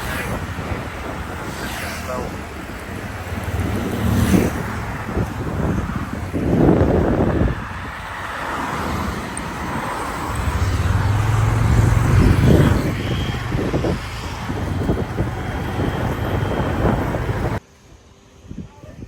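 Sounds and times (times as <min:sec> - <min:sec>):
wind buffeting microphone: 0:00.0 - 0:17.6
motorbike engine: 0:09.0 - 0:17.6.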